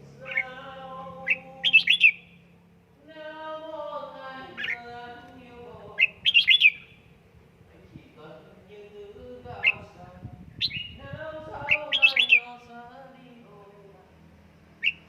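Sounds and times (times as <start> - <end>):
bird chirping: 0.0 - 2.6, 4.4 - 5.1, 5.9 - 7.1, 10.5 - 12.7, 14.8 - 15.0
bird's descending drawn-out calls: 0.2 - 2.4, 4.4 - 5.0, 6.0 - 7.0, 11.6 - 12.6.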